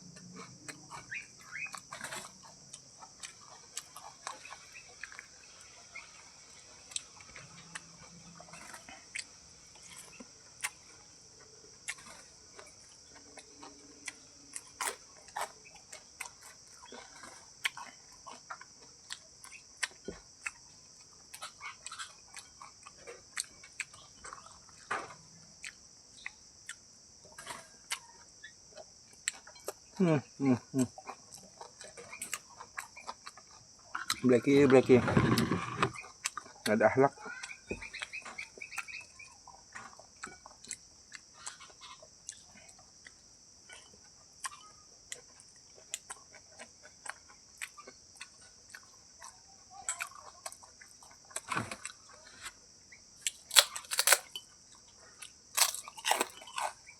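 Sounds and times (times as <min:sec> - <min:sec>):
high insect drone: 0:00.0 - 0:17.0, 0:33.7 - 0:39.3
animal crunching food: 0:31.1 - 0:38.7, 0:53.3 - 0:54.4, 0:55.3 - 0:56.9.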